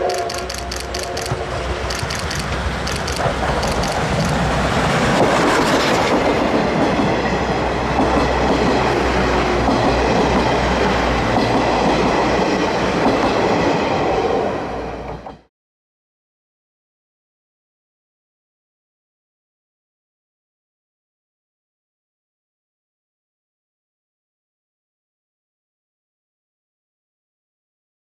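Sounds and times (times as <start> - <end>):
wheels clacking over rail joints: 0.0 - 13.8
train rolling past: 0.0 - 15.5.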